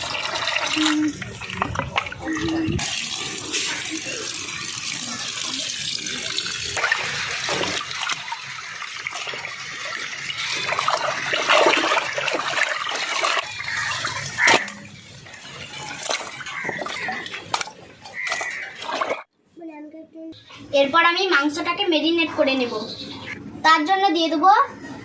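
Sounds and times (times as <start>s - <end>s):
water splashing in a vessel: 0.0s - 19.3s.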